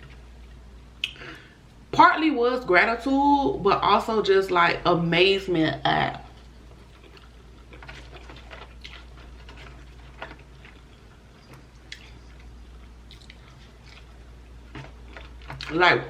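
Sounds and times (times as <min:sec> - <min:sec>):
chewing mouth smacks: 0:06.4 - 0:15.7.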